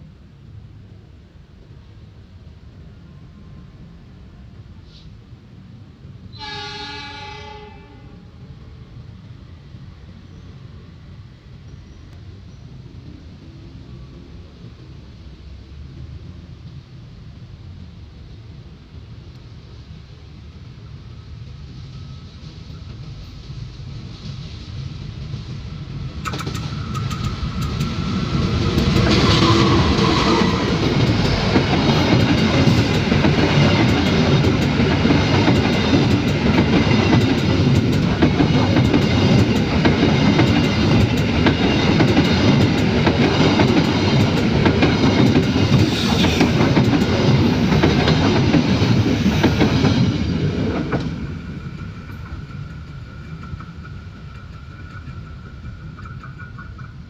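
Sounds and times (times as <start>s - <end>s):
train wheels clattering over rails: 22.1s - 57.0s.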